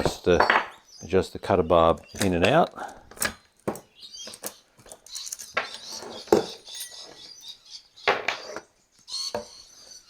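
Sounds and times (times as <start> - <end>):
metallic clicks of tools handled: 4.3 - 5.9.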